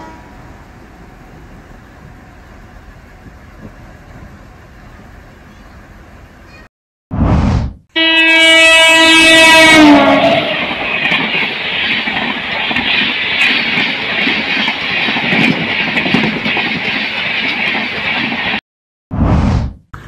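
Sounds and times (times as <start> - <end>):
train horn: 0.0 - 0.5, 7.9 - 10.8
train coaches rumbling on rails: 0.0 - 6.7, 8.6 - 18.6.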